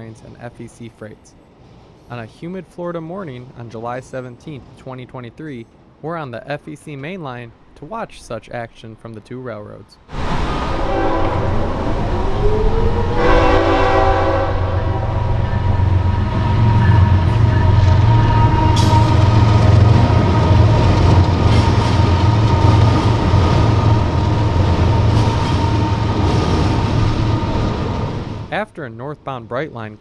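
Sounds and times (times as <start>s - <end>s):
train rumble: 10.1s - 28.7s
train horn chord: 10.7s - 11.9s, 13.0s - 20.6s.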